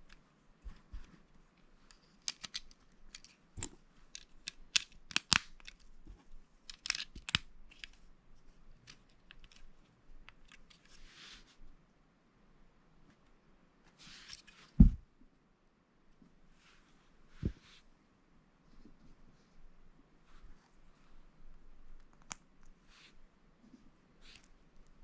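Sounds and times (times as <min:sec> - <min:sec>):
soft rustle: 0:00.0 - 0:04.4, 0:07.6 - 0:11.8, 0:13.9 - 0:15.1, 0:16.1 - 0:18.0, 0:18.6 - 0:25.0
plastic bricks clicking and snapping: 0:02.2 - 0:05.8, 0:06.7 - 0:08.0.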